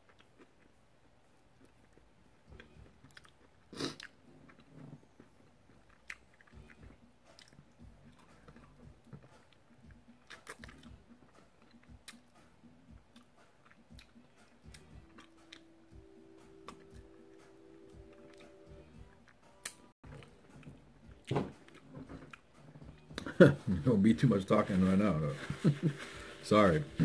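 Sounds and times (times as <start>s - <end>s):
man chewing meat: 0.0s - 16.0s, 17.9s - 23.3s.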